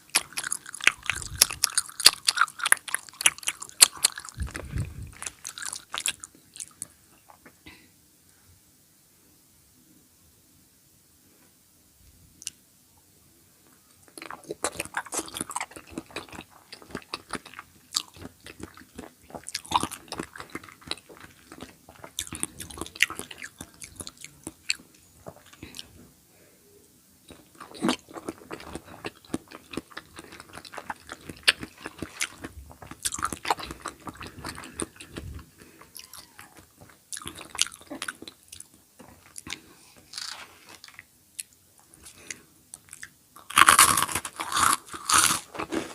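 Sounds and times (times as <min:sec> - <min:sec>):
biting food: 0:00.0 - 0:06.9, 0:14.1 - 0:25.9, 0:27.3 - 0:45.9
wet clicky chewing: 0:00.0 - 0:06.9.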